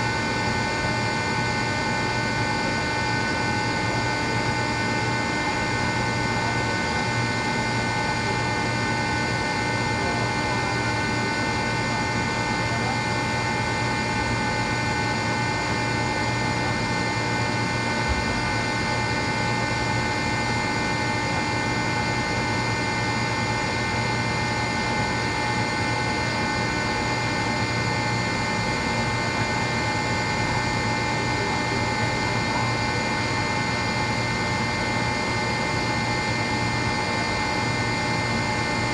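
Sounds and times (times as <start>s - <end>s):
air compressor droning: 0.0s - 38.9s
high whine: 17.7s - 20.0s.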